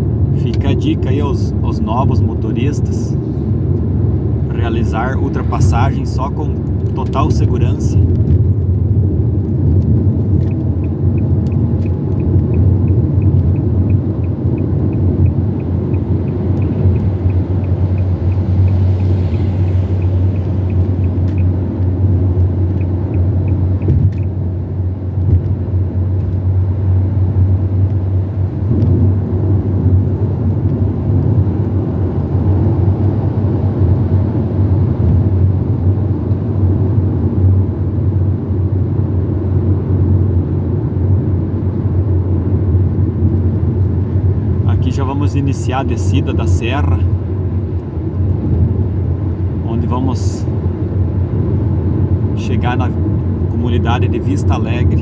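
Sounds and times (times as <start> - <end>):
car road and engine rumble: 0.0 - 55.0
faint regular ticking: 9.8 - 24.3.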